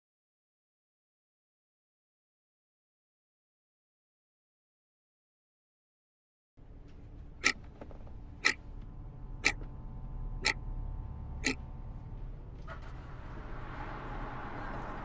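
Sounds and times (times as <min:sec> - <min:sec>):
low steady hum: 0:06.6 - 0:15.0.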